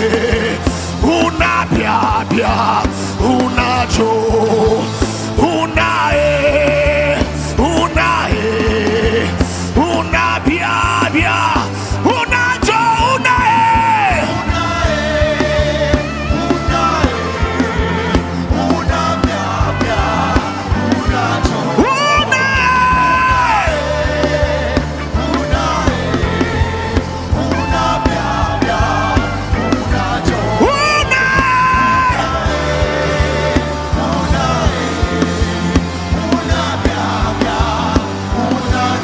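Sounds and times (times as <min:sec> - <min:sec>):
bass and drum groove: 0:00.0 - 0:39.0
gospel worship music: 0:00.0 - 0:39.0.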